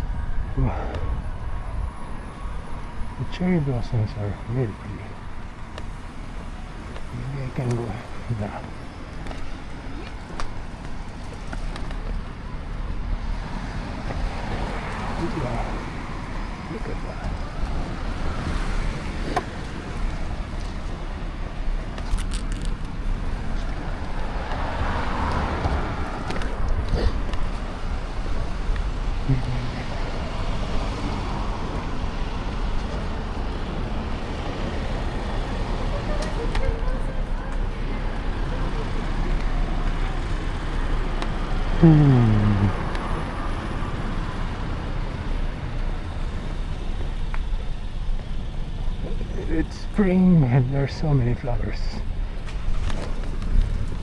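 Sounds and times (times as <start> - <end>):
road traffic rumble: 0.0 - 54.0
vehicle passing: 13.0 - 47.1.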